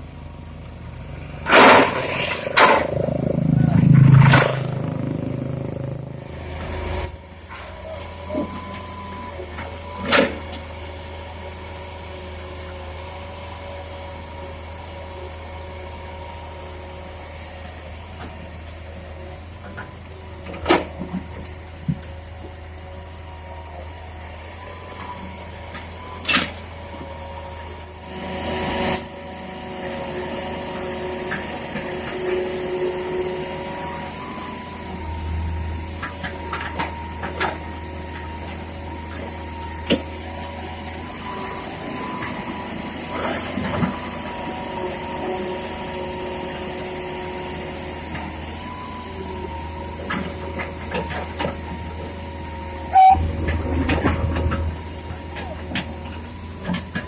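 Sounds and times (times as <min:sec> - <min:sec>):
steady whine: 0:00.0 - 0:07.2, 0:52.8 - 0:57.0
excavator diesel engine drone: 0:00.0 - 0:57.0.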